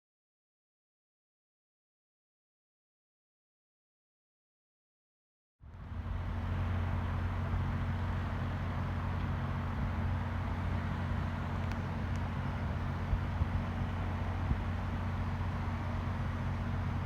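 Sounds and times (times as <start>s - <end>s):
low vehicle rumble: 5.6s - 17.0s.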